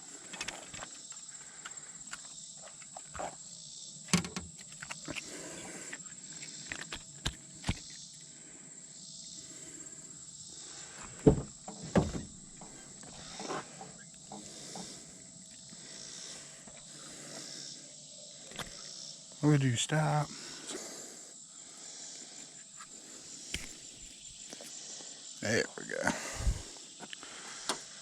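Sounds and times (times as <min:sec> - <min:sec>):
high-pitched insect drone: 0:00.0 - 0:28.0
loud thumps: 0:11.2 - 0:12.8.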